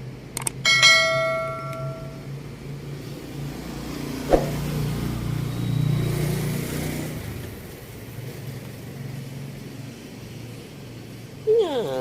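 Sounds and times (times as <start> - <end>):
vehicle engine passing: 2.9 - 7.6
sharp knock: 4.3 - 4.8.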